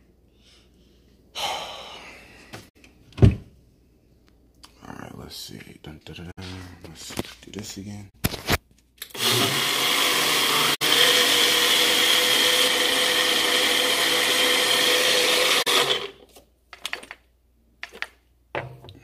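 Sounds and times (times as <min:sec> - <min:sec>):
electric blender running: 0:09.1 - 0:16.2.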